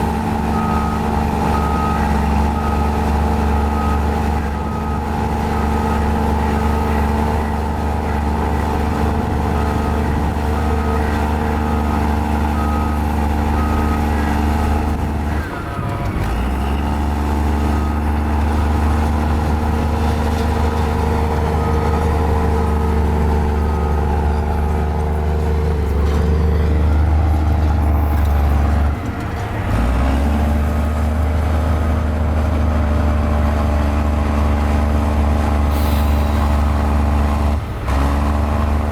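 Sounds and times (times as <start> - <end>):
bulldozer diesel engine running: 0.0 - 38.9
reversing alarm beeping: 0.1 - 29.0.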